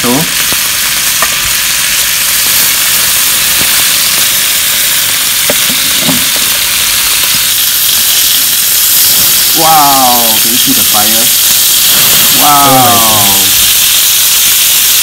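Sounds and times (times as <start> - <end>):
food sizzling on a griddle: 0.0 - 15.0.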